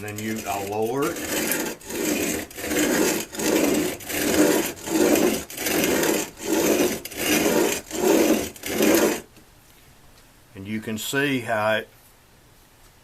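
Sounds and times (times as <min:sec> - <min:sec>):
chisel scraping on sandpaper: 0:00.0 - 0:09.3.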